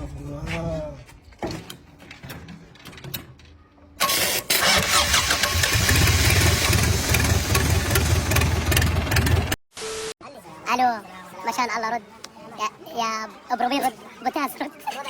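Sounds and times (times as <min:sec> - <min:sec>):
engine starting and running: 0:04.0 - 0:09.6.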